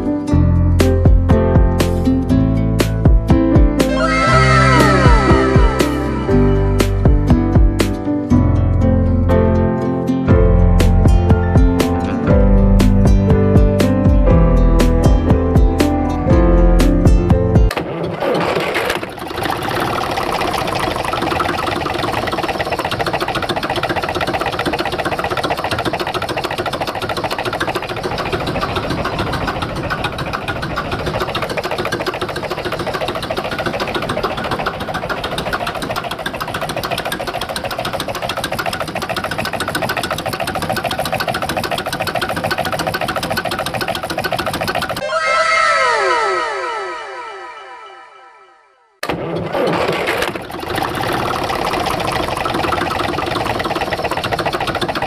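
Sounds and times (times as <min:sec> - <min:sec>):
tractor engine clattering: 0:16.8 - 0:45.0, 0:49.0 - 0:55.0.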